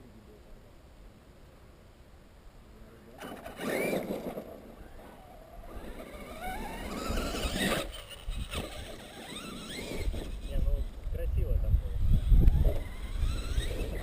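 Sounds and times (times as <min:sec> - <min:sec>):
electric motor whine rising: 0:03.4 - 0:11.0, 0:12.0 - 0:14.0.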